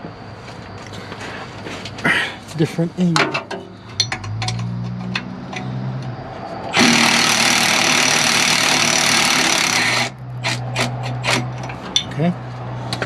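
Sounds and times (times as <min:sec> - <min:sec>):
power tool running loudly: 0:06.7 - 0:10.2.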